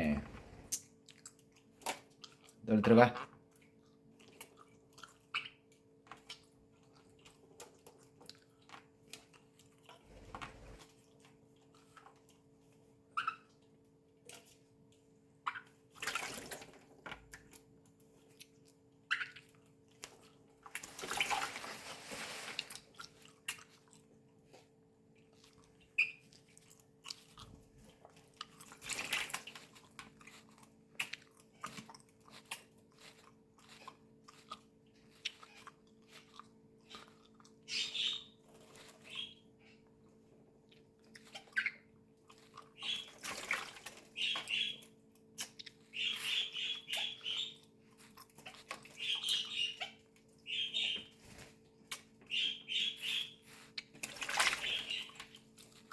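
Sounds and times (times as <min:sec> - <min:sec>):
water splashing and dripping: 0:20.7 - 0:22.7, 0:42.9 - 0:44.7, 0:54.0 - 0:55.4.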